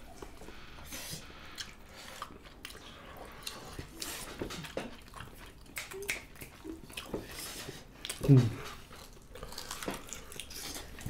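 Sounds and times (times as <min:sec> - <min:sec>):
chewing and mouth smacks: 0:01.5 - 0:11.0.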